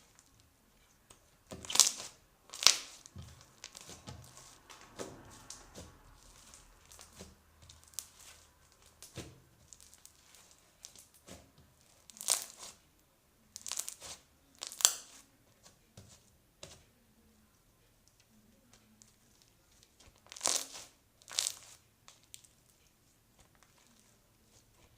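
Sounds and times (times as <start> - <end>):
slime squeezed by hand: 1.6 - 7.2.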